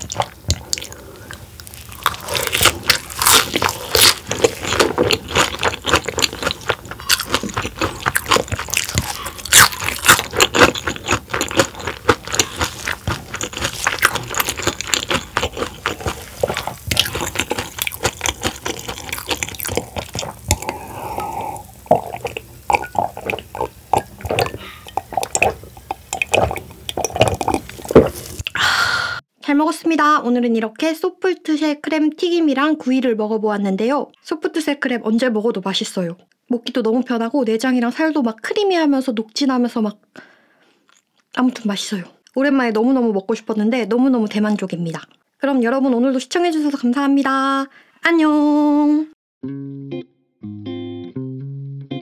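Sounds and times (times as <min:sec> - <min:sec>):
crunching fried crab: 0:00.0 - 0:28.5
wet mouth sounds: 0:00.0 - 0:28.8.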